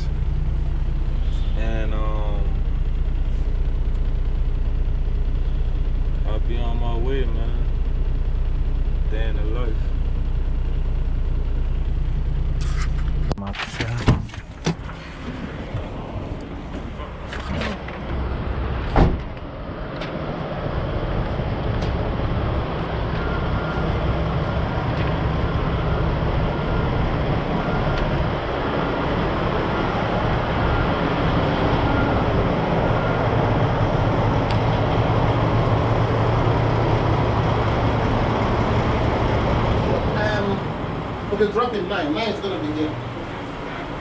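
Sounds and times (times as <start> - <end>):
diesel truck engine running: 0.0 - 44.0.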